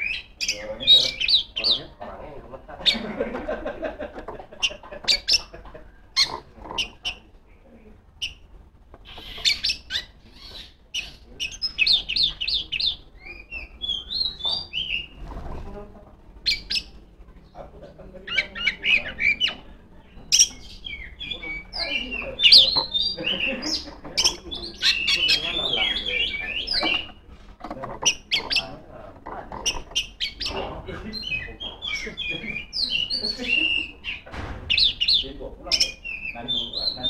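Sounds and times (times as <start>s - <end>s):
bird singing whistled notes: 9.2s - 15.1s, 31.2s - 37.0s.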